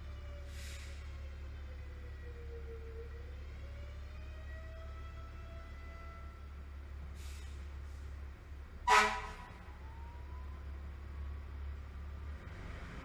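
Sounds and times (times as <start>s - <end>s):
loud horn blast: 8.8s - 9.5s.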